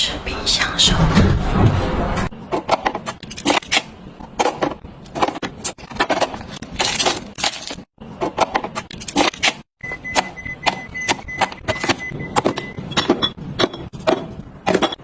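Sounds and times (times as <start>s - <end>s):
food containers clicking and scraping: 2.5s - 9.6s.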